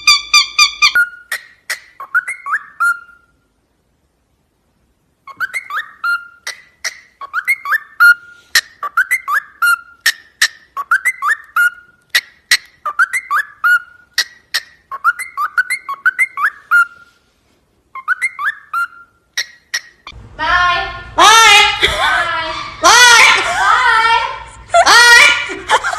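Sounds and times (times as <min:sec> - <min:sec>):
parrot whistling: 0:00.0 - 0:03.3, 0:05.2 - 0:17.2, 0:17.9 - 0:20.2.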